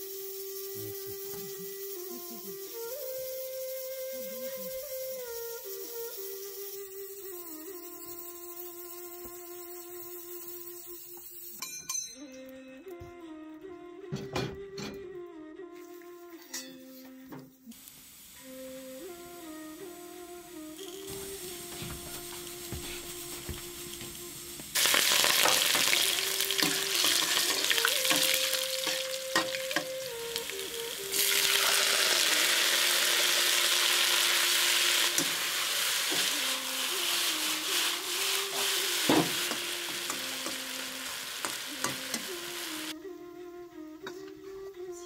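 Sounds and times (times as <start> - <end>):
soft melody: 0.0 - 11.2, 12.1 - 17.7, 18.4 - 45.0
potatoes sizzling in hot oil: 0.0 - 11.6, 17.7 - 20.0, 20.6 - 42.9
metal spatula scraping wok: 24.8 - 42.4.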